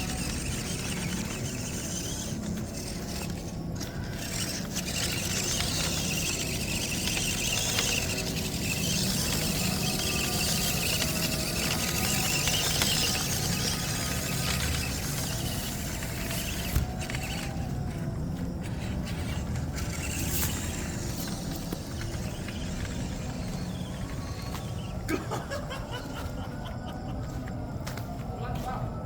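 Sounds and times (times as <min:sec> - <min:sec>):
toy truck electric motor whining: 0:00.0 - 0:27.6.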